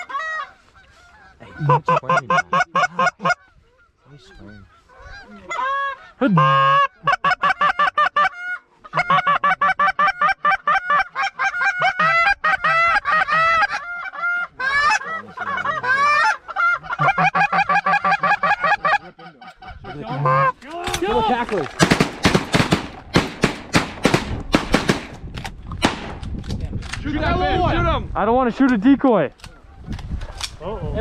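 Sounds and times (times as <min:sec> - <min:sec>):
goose honking and clucking: 0:00.0 - 0:20.6.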